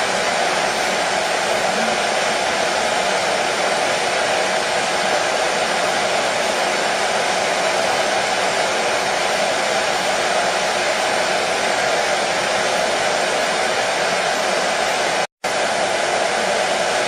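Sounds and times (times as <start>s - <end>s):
hair dryer running: 0.0s - 17.0s.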